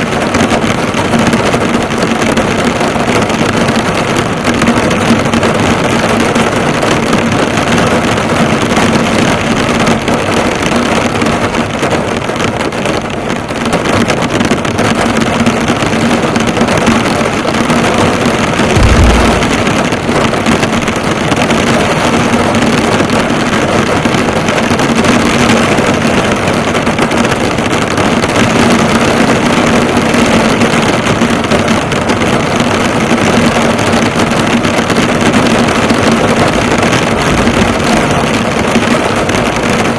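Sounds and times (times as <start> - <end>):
heavy rain on a car: 0.0 - 39.9
low thud: 18.7 - 20.6
low hum: 18.8 - 20.3.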